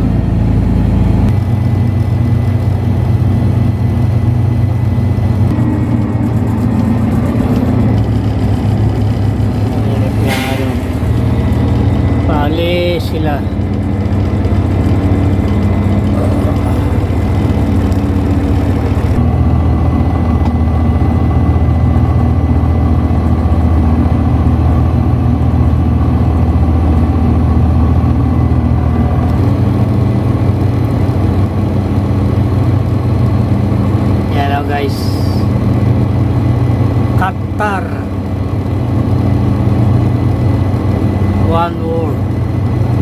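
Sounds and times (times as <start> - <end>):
engine idling: 0.0 - 43.0.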